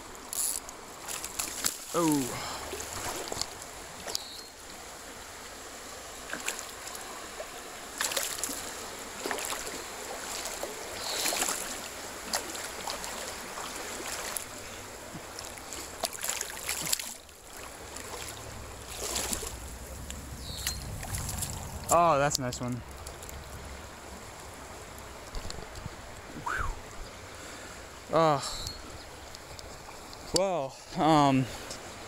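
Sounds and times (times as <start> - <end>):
water splashing: 0.1 - 26.6
wind noise: 18.5 - 22.0.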